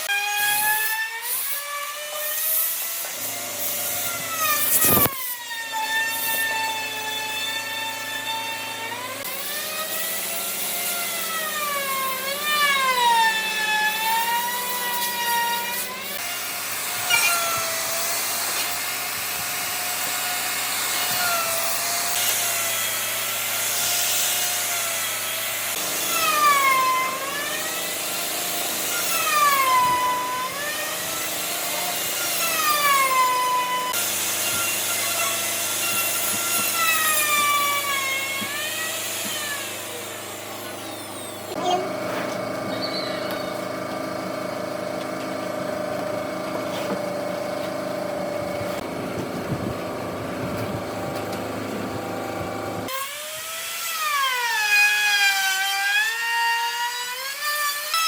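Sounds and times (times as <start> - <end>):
power tool motor whining: 0.0 - 54.7.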